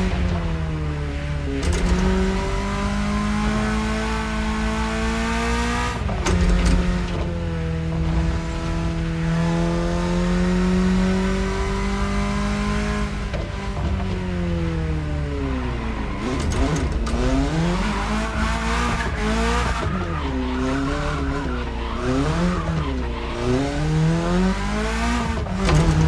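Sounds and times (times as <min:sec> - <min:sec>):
car engine revving through gears: 0:00.0 - 0:26.0.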